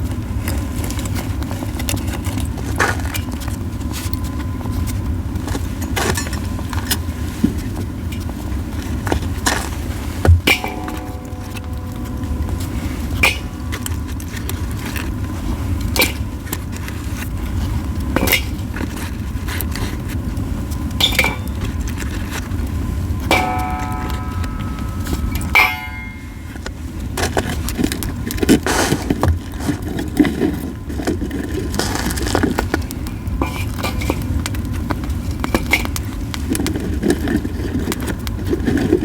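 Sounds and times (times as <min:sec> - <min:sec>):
brief ringing tone: 0:23.3 - 0:26.6.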